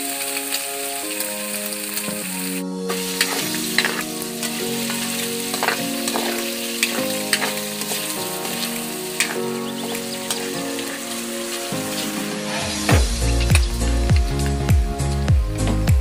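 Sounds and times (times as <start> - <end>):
meat sizzling in hot oil: 0.0 - 13.9
background music: 0.0 - 16.0
spatula scraping a pan: 2.9 - 12.9.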